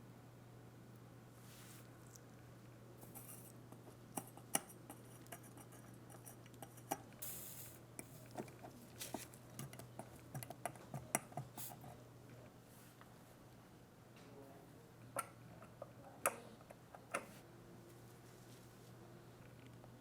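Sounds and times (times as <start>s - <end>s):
short hiss: 7.2s - 7.8s.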